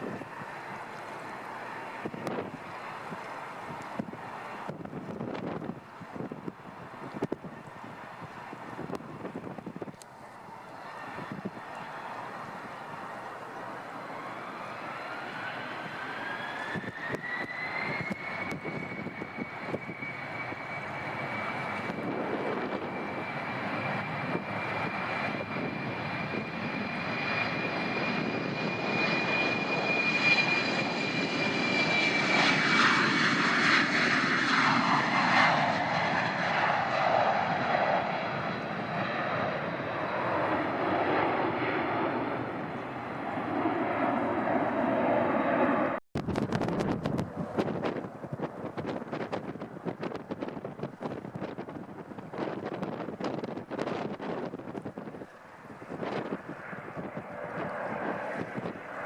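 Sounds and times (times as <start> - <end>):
airliner engine whine: 0.0 - 59.0.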